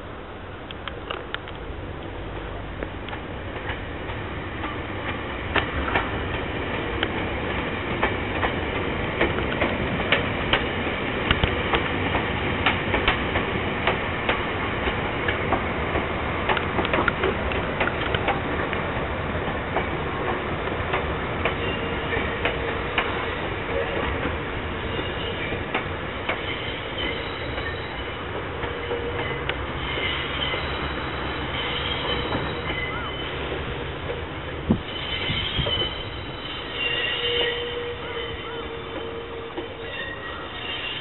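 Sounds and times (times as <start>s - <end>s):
train running noise: 0.0s - 41.0s
train wheels clattering over rail joints: 2.8s - 36.1s.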